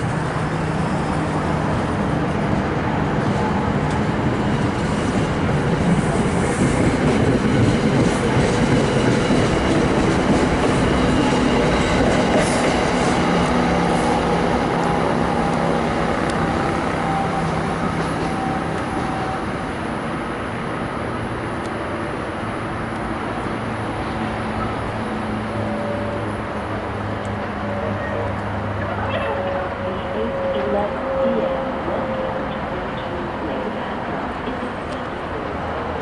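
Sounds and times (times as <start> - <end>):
train wheels rumbling on rail: 0.0 - 36.0.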